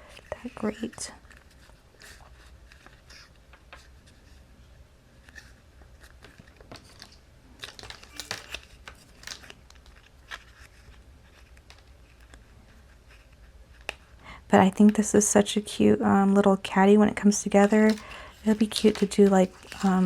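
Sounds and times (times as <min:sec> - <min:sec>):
paper crinkling rustles: 0:00.1 - 0:04.4, 0:05.2 - 0:14.1, 0:17.2 - 0:20.0.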